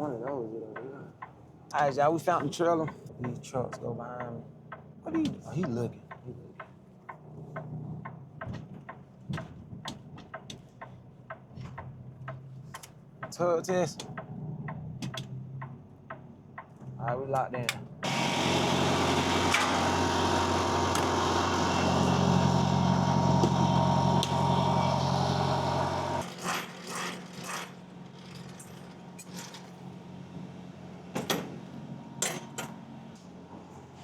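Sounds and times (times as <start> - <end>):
sharp clicks and knocks: 0.2 - 18.1
diesel truck engine running: 17.8 - 26.2.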